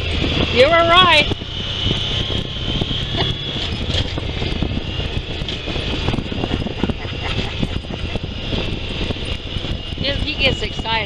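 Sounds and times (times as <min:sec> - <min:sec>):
vehicle engine rumble: 0:00.0 - 0:11.0
knocks and rattles: 0:03.3 - 0:09.7.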